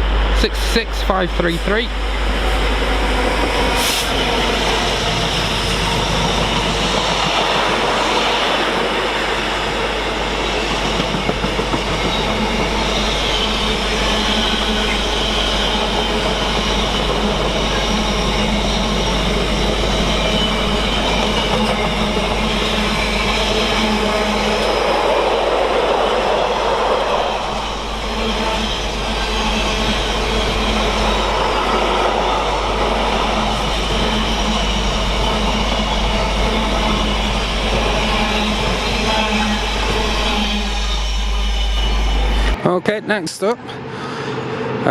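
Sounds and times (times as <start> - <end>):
freight train wheels on rails: 0.0 - 42.8.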